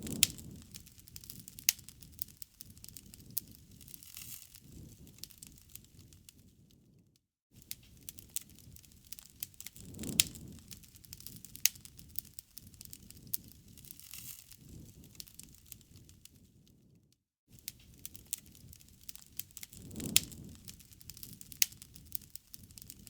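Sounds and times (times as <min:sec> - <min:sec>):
wood fire crackling and popping: 0:00.0 - 0:07.0, 0:07.6 - 0:17.0, 0:17.6 - 0:23.0.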